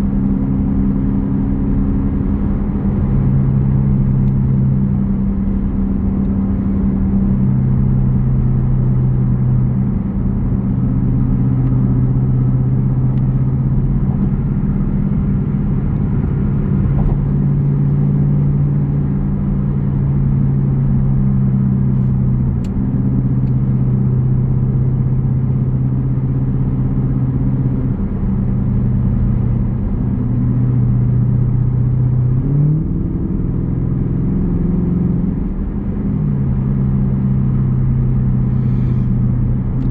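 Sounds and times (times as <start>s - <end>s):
v-eight exhaust rumbling: 0.0s - 39.9s.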